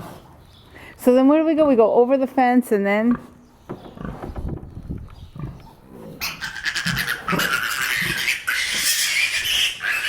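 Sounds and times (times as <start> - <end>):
piglet squealing: 6.2 - 10.0.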